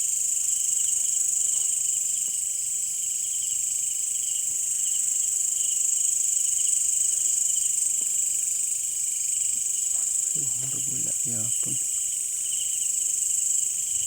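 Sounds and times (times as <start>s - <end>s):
crickets calling: 8.9s - 14.0s.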